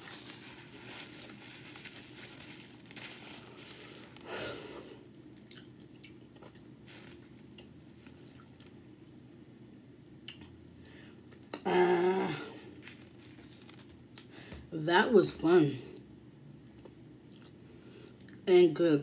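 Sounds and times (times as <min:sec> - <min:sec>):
person chewing: 0:05.3 - 0:08.8, 0:17.3 - 0:18.4.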